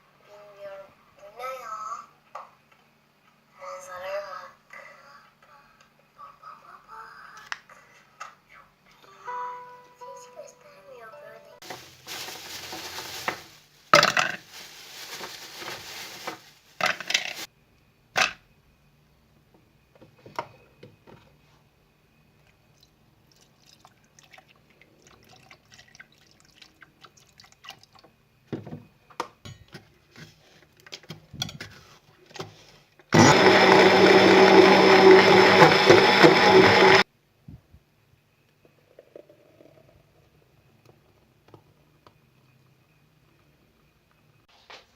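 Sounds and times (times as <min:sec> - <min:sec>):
handling noises: 0:11.6 - 0:17.5
kitchen appliance motor whirring: 0:33.2 - 0:37.0.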